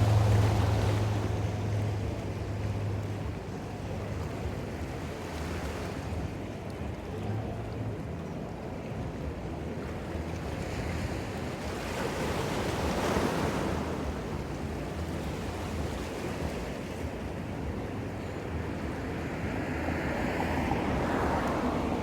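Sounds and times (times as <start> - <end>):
ocean wave breaking: 0.0 - 2.0, 18.2 - 22.0
wind rumble on microphone: 0.0 - 22.0.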